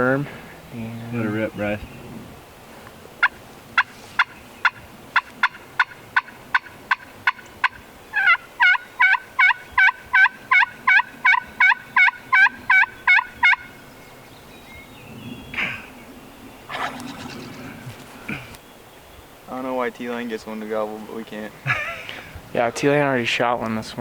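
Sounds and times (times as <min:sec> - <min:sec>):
turkey call hen yelps: 0:03.2 - 0:13.8, 0:16.7 - 0:18.6.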